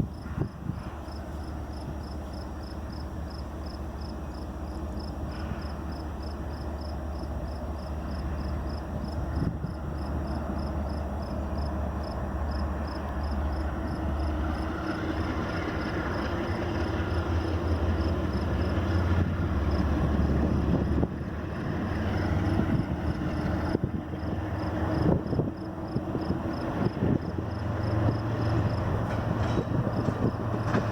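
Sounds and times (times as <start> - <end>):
freight train rumbling by: 0.0 - 30.9.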